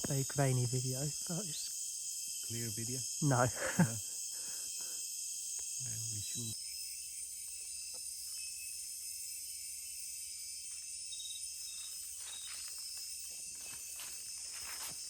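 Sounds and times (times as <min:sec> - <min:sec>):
crickets and insects droning: 0:00.0 - 0:15.0
faint footsteps: 0:12.2 - 0:15.0.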